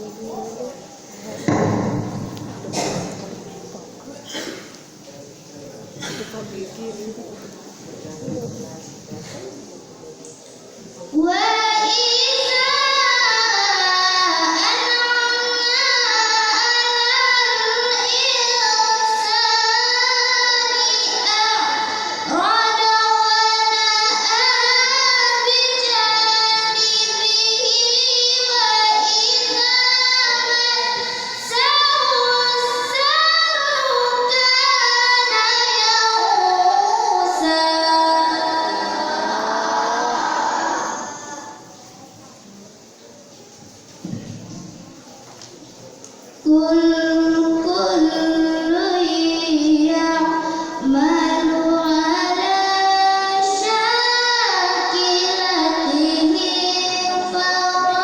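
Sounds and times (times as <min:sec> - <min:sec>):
girl chanting melodically: 0:11.2 - 0:41.7, 0:46.4 - 0:58.0.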